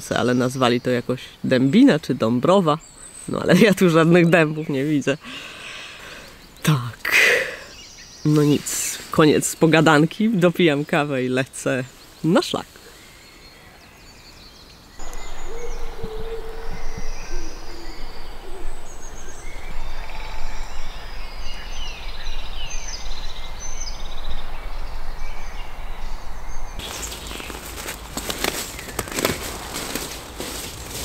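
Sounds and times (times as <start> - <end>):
steady background hiss: 0.0 - 28.6
birds whistling and trilling: 1.6 - 11.1, 11.8 - 30.6
low held bird call: 15.0 - 27.1.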